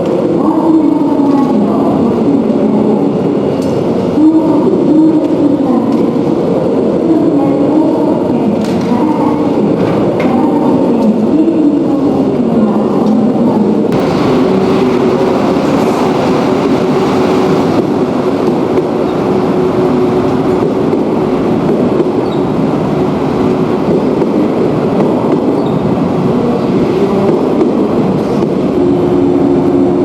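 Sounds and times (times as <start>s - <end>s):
train rumbling: 0.0s - 30.0s
low hum: 13.9s - 22.2s.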